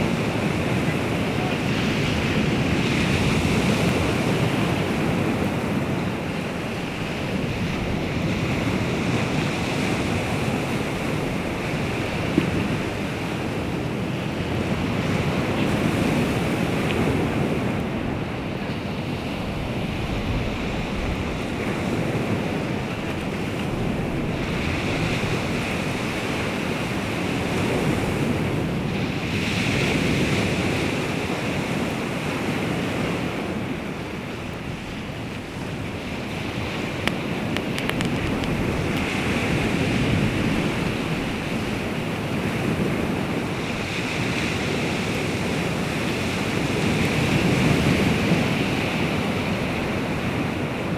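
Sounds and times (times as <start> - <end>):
waves breaking and washing ashore: 0.0 - 50.9
wind buffeting microphone: 0.0 - 50.9
brief clicks: 37.0 - 39.1.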